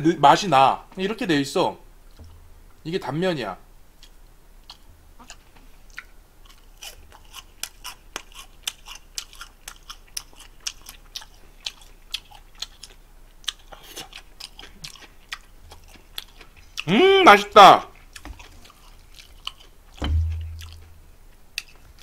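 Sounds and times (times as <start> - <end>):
person chewing crisp food: 4.0 - 17.0, 17.8 - 22.0.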